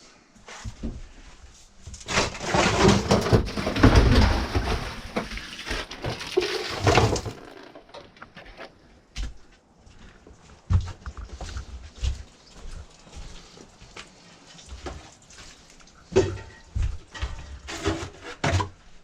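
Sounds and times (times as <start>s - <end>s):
debris clattering and crunching: 1.8s - 8.8s, 14.8s - 19.0s.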